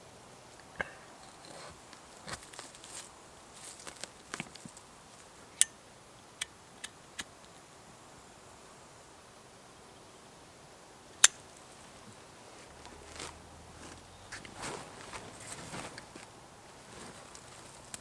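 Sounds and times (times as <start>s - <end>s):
soft rustling: 1.2s - 5.4s, 11.5s - 18.0s.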